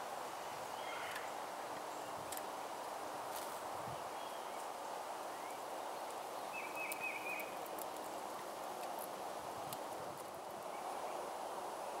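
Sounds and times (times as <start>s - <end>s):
outdoor background noise: 0.0s - 12.0s
faint songbird chirps: 0.4s - 2.2s, 3.9s - 7.7s.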